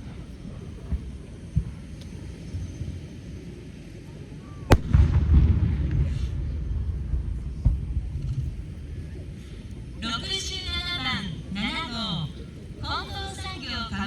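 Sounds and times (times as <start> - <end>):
aerial shell bursting: 4.7 - 5.7
faint firework launch thumps: 4.7 - 6.1
smaller firework bang: 4.7 - 6.4.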